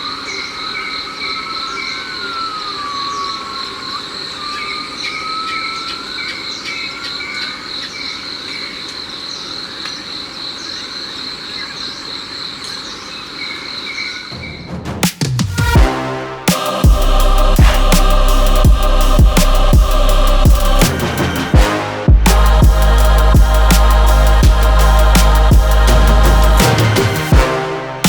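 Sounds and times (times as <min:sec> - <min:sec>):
rising and falling whistling calls: 0:00.0 - 0:08.6.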